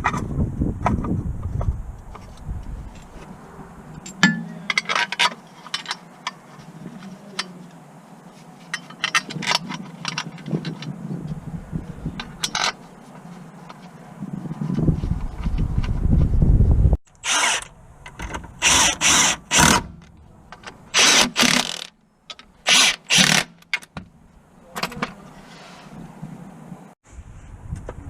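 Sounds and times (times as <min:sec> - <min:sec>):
metal tools clinking and scraping: 0:03.9 - 0:11.0, 0:12.2 - 0:14.0.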